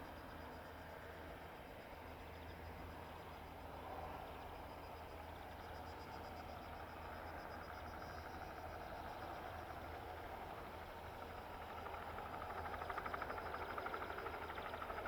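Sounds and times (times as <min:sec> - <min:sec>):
helicopter rotor beat: 0:07.0 - 0:15.0.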